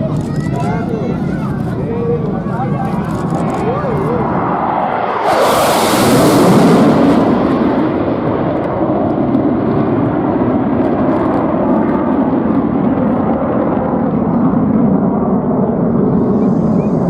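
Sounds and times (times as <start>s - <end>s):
military jet roar: 0.0s - 17.0s.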